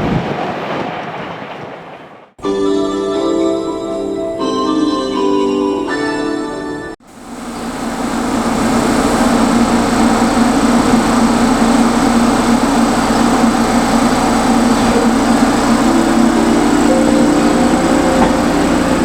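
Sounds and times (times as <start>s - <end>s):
thin high whine: 6.5s - 19.0s
train rumble: 7.0s - 19.0s.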